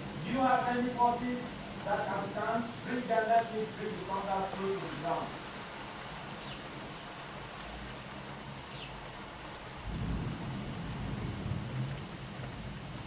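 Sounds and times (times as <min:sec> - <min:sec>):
rain falling: 0:00.0 - 0:13.0
thunder rumbling: 0:09.8 - 0:13.0.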